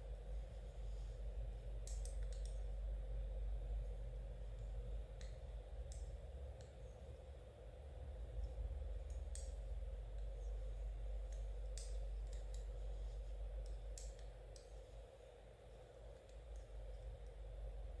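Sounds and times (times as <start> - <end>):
low background hum: 0.0 - 18.0
knitting needles clicking: 1.8 - 2.6.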